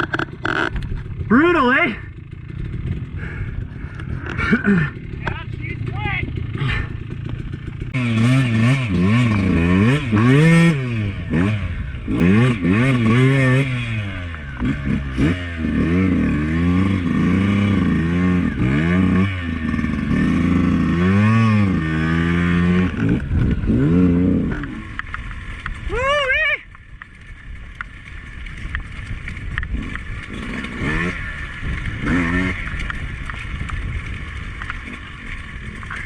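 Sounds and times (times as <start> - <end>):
dirt bike engine revving: 0.0 - 26.4, 27.1 - 36.0.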